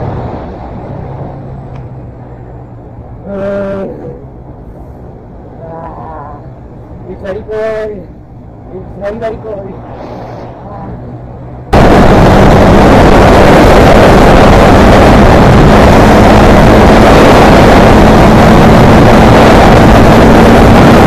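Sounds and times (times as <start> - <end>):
wind rush on microphone: 0.0 - 21.0.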